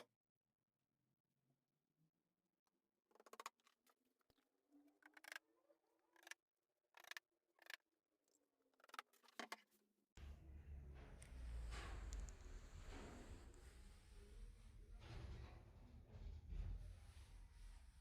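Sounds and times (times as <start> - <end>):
steady low hum: 10.2 - 18.0.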